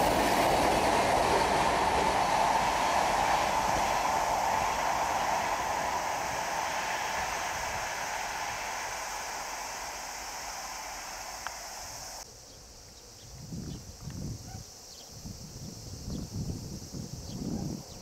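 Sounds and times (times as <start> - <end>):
passing train rolling: 0.0 - 12.2.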